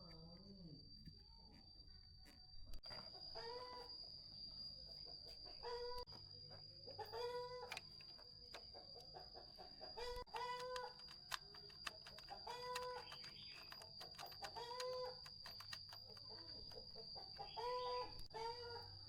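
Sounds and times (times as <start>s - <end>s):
chickens clucking: 12.2s - 18.8s.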